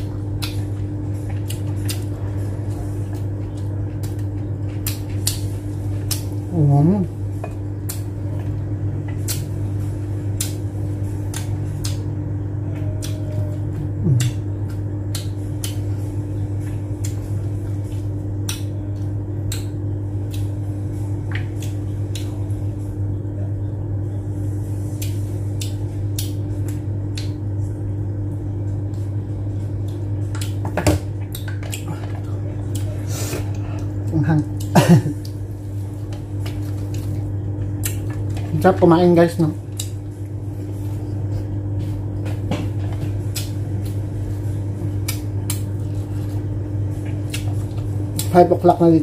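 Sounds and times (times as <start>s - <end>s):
steady low hum: 0.0s - 49.0s
person chewing: 0.3s - 6.4s, 12.9s - 15.9s, 31.2s - 38.4s, 39.7s - 41.9s, 43.1s - 48.3s
sharp mouth clicks: 14.1s - 14.4s.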